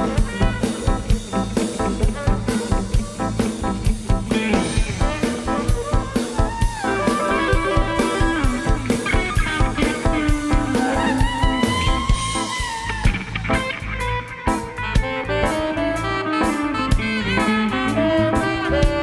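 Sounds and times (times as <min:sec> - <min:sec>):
bass: 0:00.0 - 0:19.0
drum kit beat: 0:00.0 - 0:19.0
lead instrument bending notes: 0:04.3 - 0:19.0.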